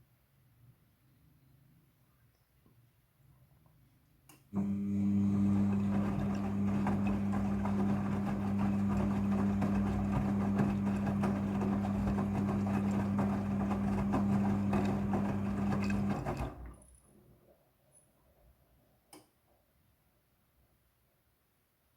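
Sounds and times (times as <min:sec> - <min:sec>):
washing machine electric hum: 0:04.5 - 0:17.0.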